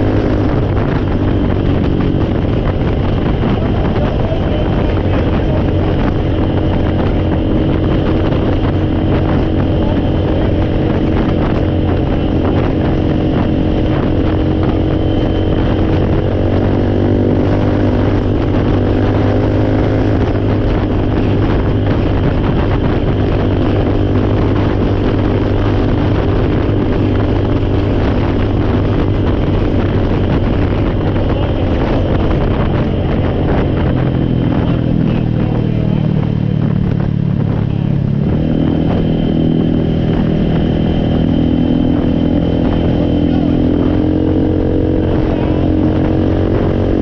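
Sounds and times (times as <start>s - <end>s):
four-wheeler engine running: 0.0s - 47.0s.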